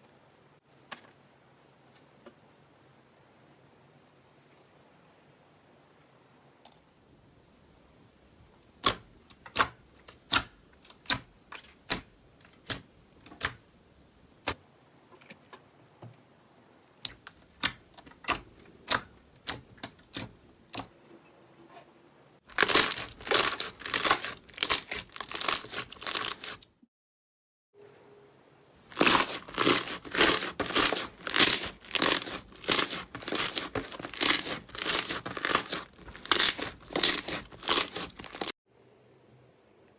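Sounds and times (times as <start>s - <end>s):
slime popping and crackling: 22.5s - 26.6s, 28.9s - 38.5s.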